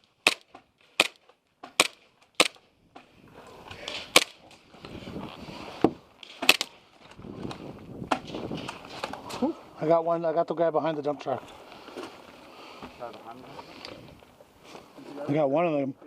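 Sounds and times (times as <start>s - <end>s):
rough rustling background noise: 0.0s - 16.0s
toy gun shots cracking: 0.2s - 2.6s, 4.1s - 4.4s, 6.2s - 6.7s.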